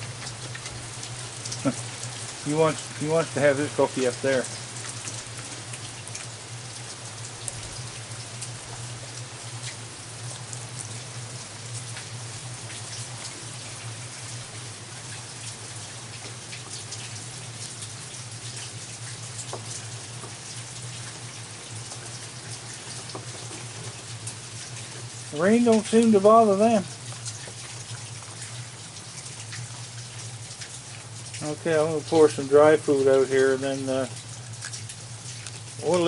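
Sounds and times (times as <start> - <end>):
heavy rain falling: 0.0 - 36.0
rain drops hitting close by: 0.0 - 36.0.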